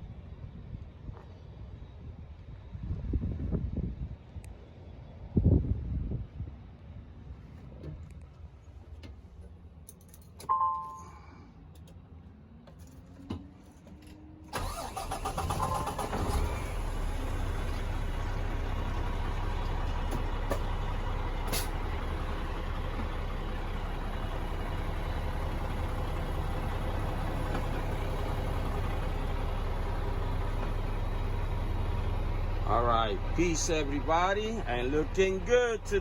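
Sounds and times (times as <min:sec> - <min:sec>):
diesel engine cranking and idling: 0:06.9 - 0:36.0
brief beep: 0:10.5 - 0:11.3.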